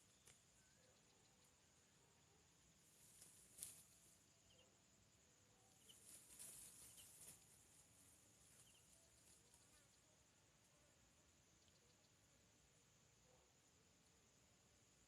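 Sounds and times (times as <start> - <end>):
soft rustling: 2.9 - 4.2, 5.8 - 9.8.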